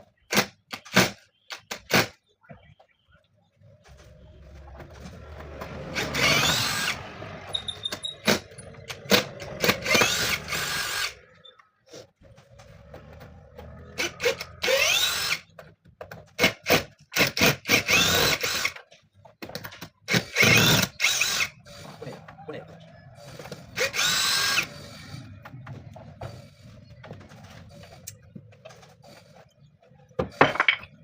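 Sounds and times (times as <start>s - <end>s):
power drill spinning up: 5.8s - 11.3s, 14.2s - 15.5s, 17.2s - 18.8s, 20.1s - 22.0s, 23.3s - 25.0s.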